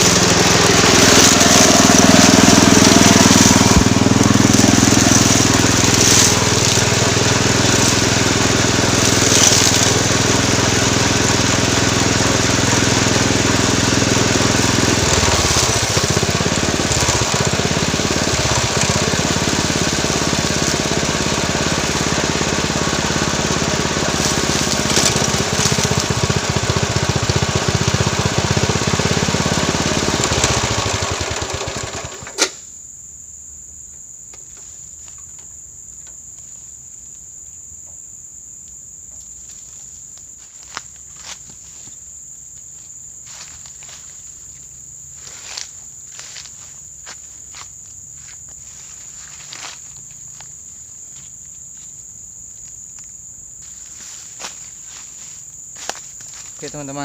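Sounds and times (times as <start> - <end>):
small petrol engine running: 0.0 - 32.6, 43.2 - 47.6, 48.2 - 50.5, 53.8 - 57.0.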